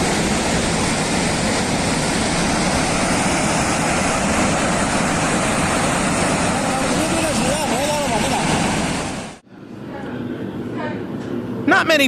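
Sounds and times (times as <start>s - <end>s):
floodwater rushing roar: 0.0s - 9.4s.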